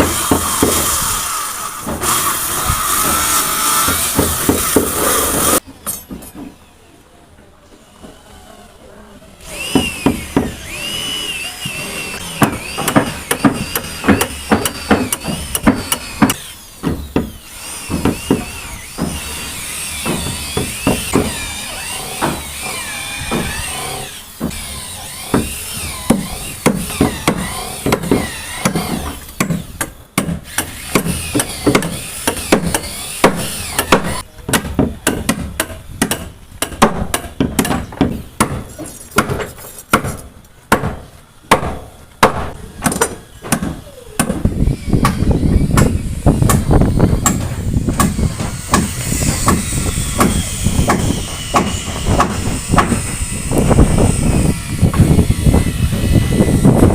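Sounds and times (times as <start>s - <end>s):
hammer on wooden floor boards: 3.8s - 5.0s, 12.4s - 17.3s, 17.9s - 19.3s, 20.0s - 21.4s, 45.8s - 53.1s.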